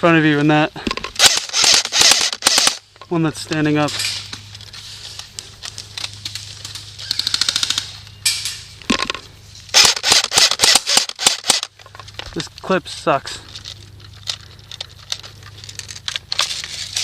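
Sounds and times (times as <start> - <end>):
airsoft guns firing: 1.2 - 2.8, 9.7 - 11.7.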